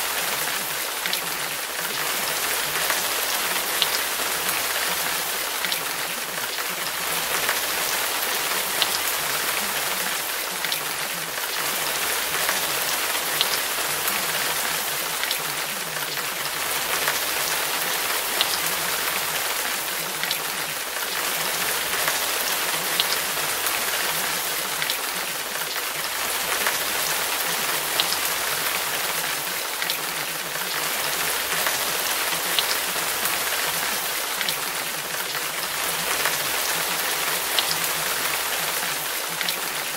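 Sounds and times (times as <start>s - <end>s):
steady rain hissing: 0.0s - 39.9s
raindrops ticking: 0.1s - 39.9s.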